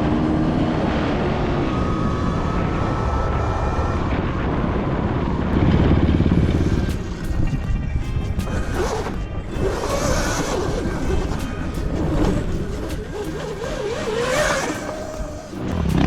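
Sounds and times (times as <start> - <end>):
background music: 3.6 - 16.0
dirt bike motor: 5.6 - 16.0.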